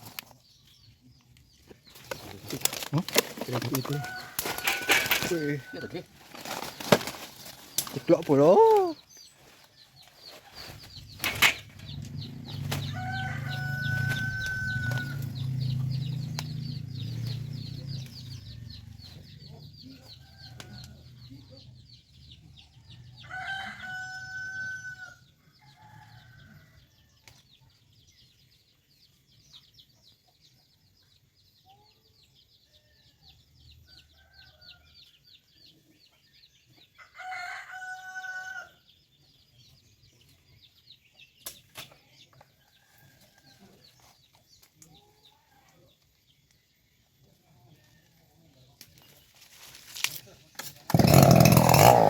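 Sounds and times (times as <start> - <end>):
rooster crowing: 3.8 - 6.0, 12.8 - 15.4, 23.2 - 26.7, 37.1 - 38.8.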